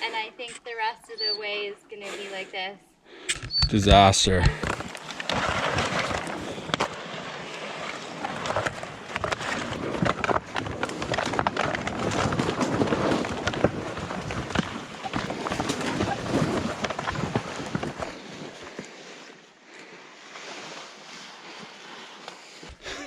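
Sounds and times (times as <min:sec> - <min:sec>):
sleds scraping over ground: 0:03.7 - 0:19.3
footsteps in mud and slush: 0:04.4 - 0:23.0.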